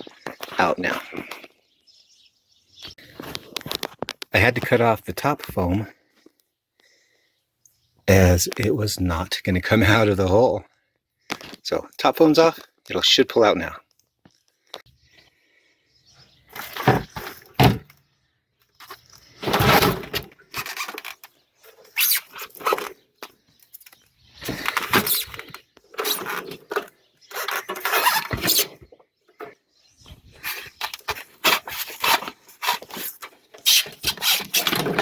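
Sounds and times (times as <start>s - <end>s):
water heater scraping and squealing: 24.4s - 28.8s, 31.5s - 35.0s.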